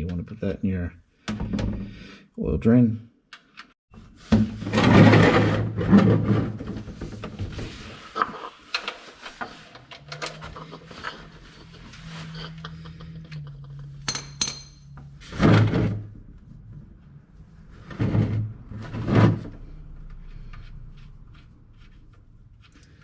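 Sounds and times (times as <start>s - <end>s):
metallic tool clinks: 14.1s - 14.9s.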